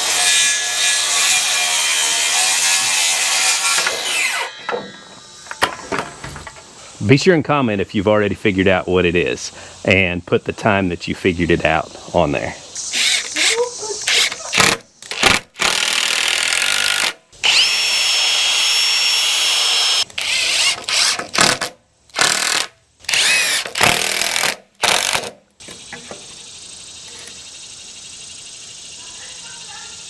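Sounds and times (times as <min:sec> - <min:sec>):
power drill whining: 0:12.9 - 0:14.8, 0:15.7 - 0:21.2, 0:22.2 - 0:25.2.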